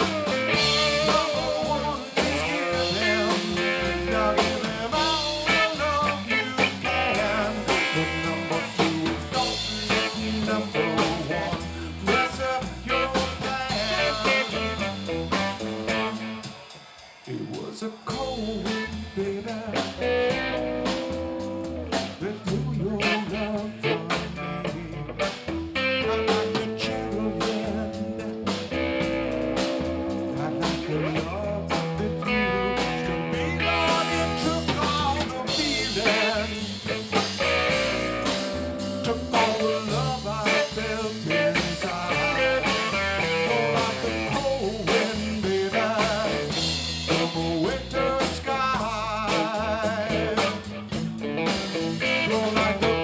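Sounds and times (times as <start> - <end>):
blues rock band playing live: 0.0 - 53.0
guitar bent notes: 23.0 - 48.2, 49.3 - 53.0.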